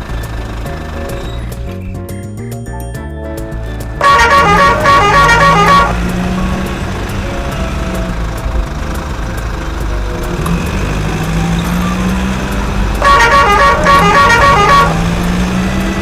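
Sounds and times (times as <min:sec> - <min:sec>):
bus engine running: 0:00.0 - 0:16.0
rapid horn toots: 0:04.0 - 0:08.4, 0:10.2 - 0:16.0.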